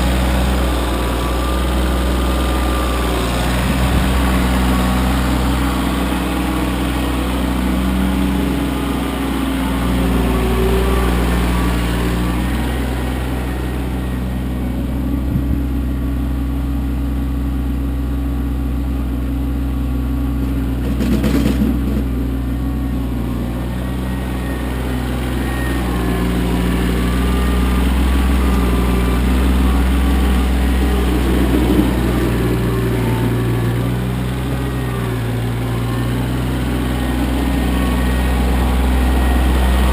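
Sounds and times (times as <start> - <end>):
tractor diesel engine running: 0.0 - 39.9
brief rough noise: 20.4 - 22.2.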